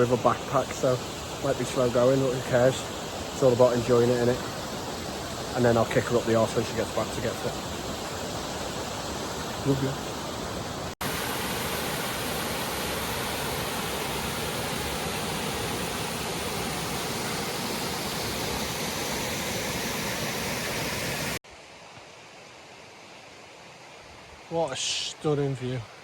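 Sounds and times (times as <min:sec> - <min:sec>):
running water rushing: 0:00.0 - 0:26.0
quiet hiss: 0:21.0 - 0:26.0.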